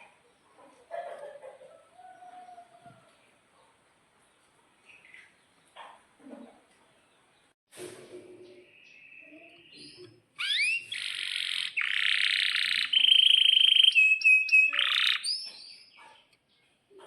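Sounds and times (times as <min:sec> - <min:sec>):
canary singing: 0:08.6 - 0:16.4.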